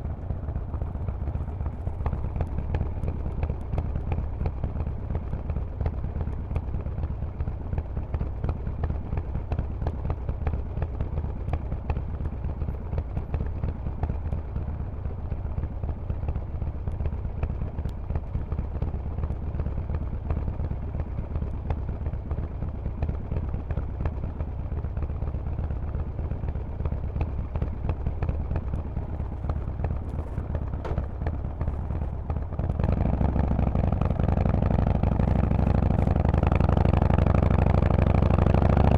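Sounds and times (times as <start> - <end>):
motorcycle engine pulsing exhaust: 0.0 - 38.9.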